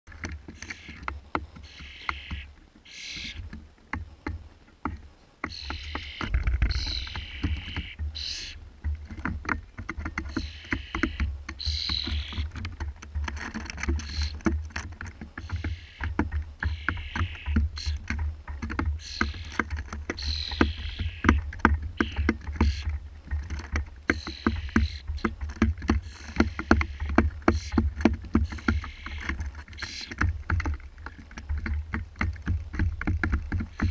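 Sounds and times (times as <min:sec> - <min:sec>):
sharp clicks: 0:00.1 - 0:33.9
fledgling bird begging calls: 0:00.6 - 0:01.0, 0:01.6 - 0:03.5, 0:05.4 - 0:08.6, 0:10.2 - 0:12.6, 0:13.9 - 0:14.4, 0:15.4 - 0:18.2, 0:18.8 - 0:23.0, 0:24.1 - 0:30.3.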